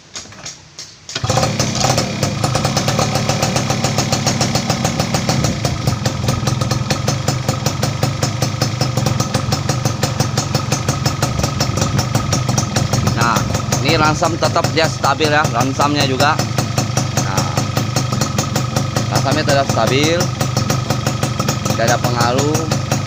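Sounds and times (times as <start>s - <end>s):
two-stroke engine idling: 1.2s - 23.0s.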